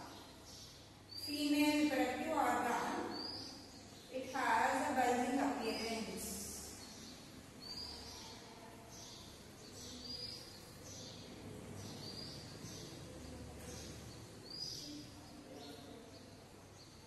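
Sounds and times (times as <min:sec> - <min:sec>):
small bird chirping: 0:03.0 - 0:04.1, 0:06.6 - 0:17.0.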